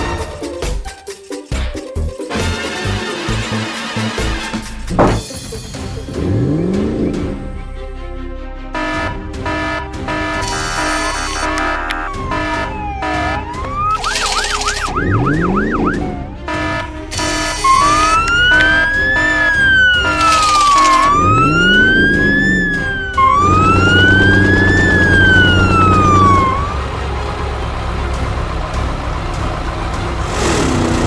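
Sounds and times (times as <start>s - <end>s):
background music: 0.0s - 31.0s
vehicle engine running: 4.2s - 7.8s, 10.4s - 31.0s
siren yelp: 8.8s - 26.8s
police siren wailing: 8.8s - 30.0s.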